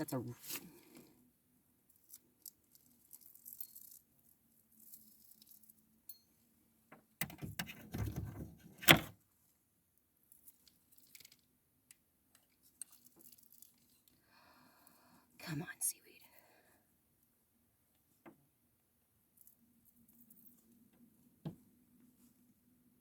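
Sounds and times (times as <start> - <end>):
fishing gear clicking and rattling: 10.4 - 11.5, 12.4 - 14.2.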